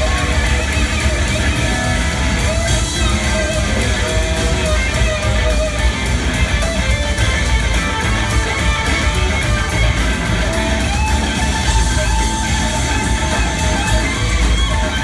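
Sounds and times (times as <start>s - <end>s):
electric guitar: 0.0s - 15.0s
live rock band playing: 0.0s - 15.0s.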